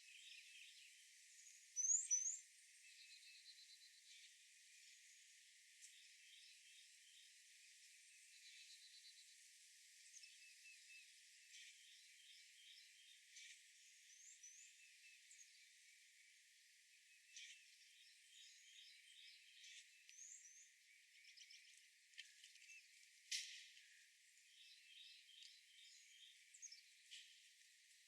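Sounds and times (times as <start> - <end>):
birds chirping: 10.2 - 28.0.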